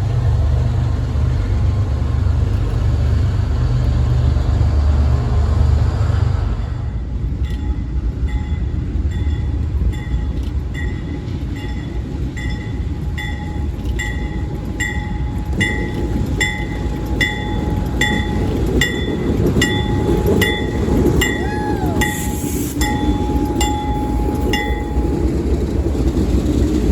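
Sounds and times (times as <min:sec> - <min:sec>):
train rumbling by: 0:00.0 - 0:26.9
railroad bell ringing: 0:06.6 - 0:26.9.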